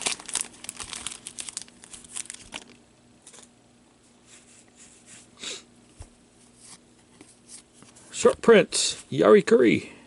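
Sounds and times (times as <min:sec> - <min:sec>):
soft card and wrapper rustles: 0:00.0 - 0:03.5.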